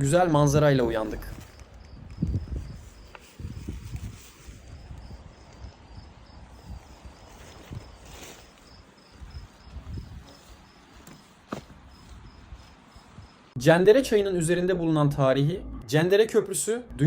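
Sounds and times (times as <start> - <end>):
cricket chirping: 1.2 - 13.6.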